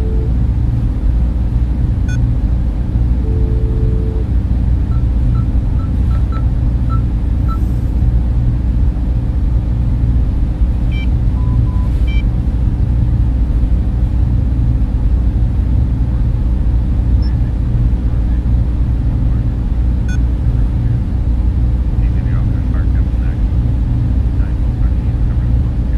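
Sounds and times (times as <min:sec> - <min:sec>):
server cooling fans humming: 0:00.0 - 0:25.9
faint short beeps: 0:03.3 - 0:04.3, 0:10.9 - 0:12.2.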